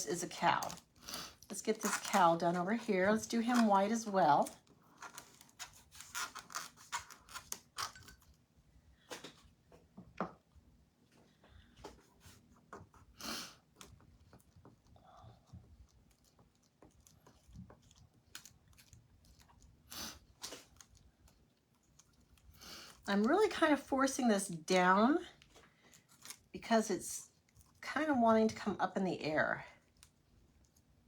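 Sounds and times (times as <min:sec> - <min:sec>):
scraper scraping and clicking: 0:01.5 - 0:08.1.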